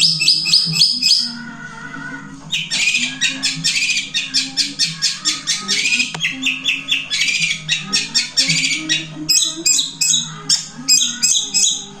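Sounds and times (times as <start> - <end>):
shrike singing squawky notes: 0.0 - 1.4.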